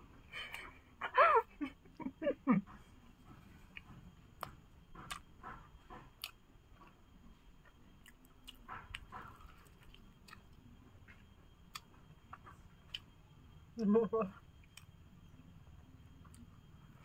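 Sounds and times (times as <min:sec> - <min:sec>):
person chewing food: 0:02.7 - 0:13.2.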